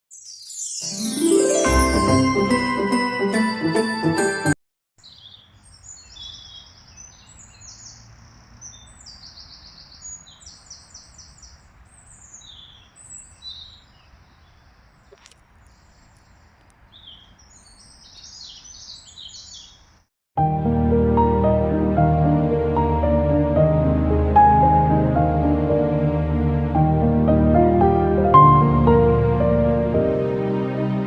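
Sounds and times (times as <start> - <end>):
songbirds singing and calling: 5.0 - 20.1.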